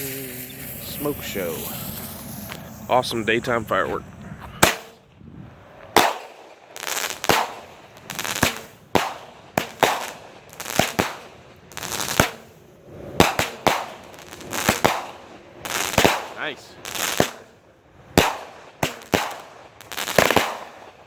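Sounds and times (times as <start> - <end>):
firework bangs with hiss: 0.0 - 3.0, 4.6 - 5.0, 5.8 - 21.0.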